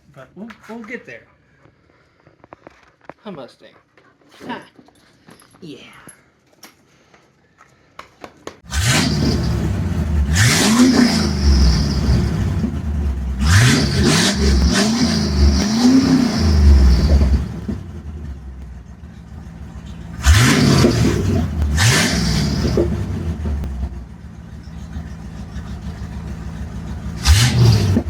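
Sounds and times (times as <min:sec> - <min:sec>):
car engine idling and revving: 0:08.6 - 0:28.0.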